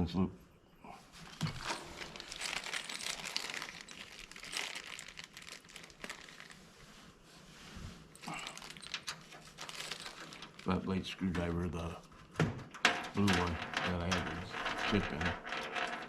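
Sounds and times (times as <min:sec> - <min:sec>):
crinkling and rustling: 0:01.1 - 0:16.0.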